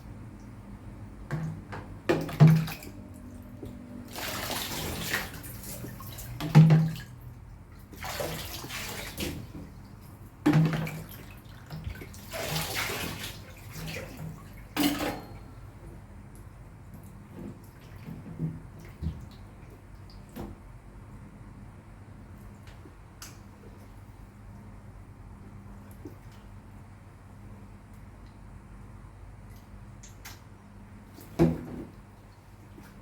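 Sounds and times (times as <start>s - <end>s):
water spraying in bursts: 4.1s - 6.4s, 12.2s - 13.5s.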